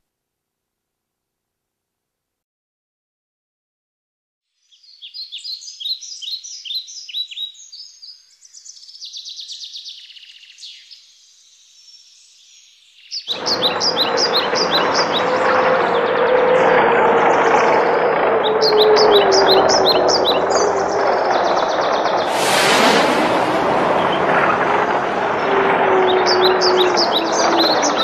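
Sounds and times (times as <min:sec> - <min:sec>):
songbirds chirping: 0:04.6 - 0:22.3
loud steady rushing noise: 0:13.3 - 0:28.0.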